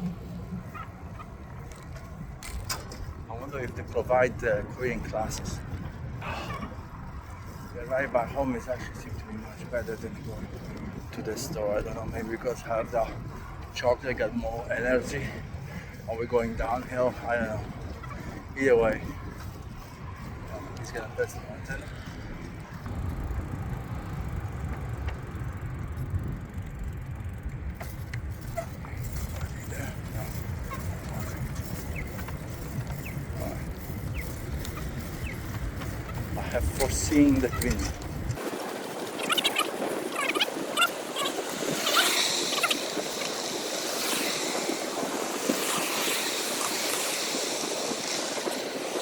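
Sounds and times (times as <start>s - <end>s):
bicycle riding rumble: 0.0s - 49.0s
wind rushing on microphone: 0.0s - 49.0s
faint ticks: 4.9s - 38.4s.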